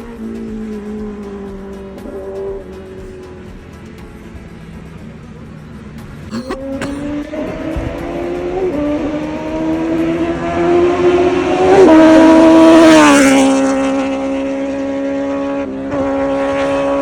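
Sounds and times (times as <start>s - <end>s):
motorcycle passing by: 7.1s - 17.0s.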